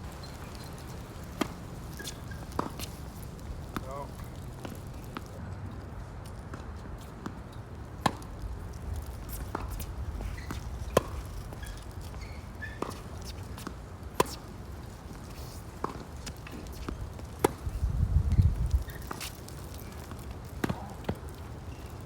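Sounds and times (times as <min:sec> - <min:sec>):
wind rumble on microphone: 0:16.9 - 0:19.1
tennis ball hit by racquet: 0:20.1 - 0:21.3.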